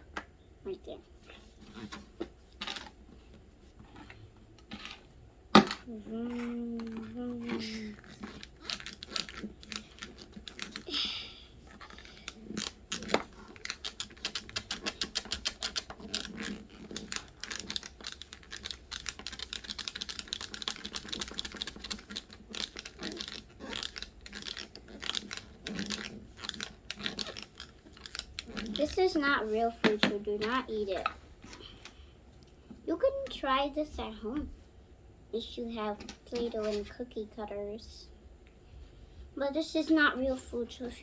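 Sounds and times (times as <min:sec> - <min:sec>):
plastic tools clicking: 0:08.0 - 0:10.9, 0:11.7 - 0:29.0.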